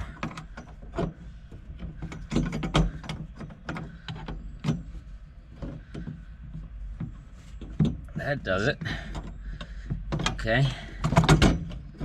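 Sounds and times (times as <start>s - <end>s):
low hum: 0.0s - 12.0s
hand tools clicking and knocking: 1.8s - 5.0s, 8.8s - 12.0s.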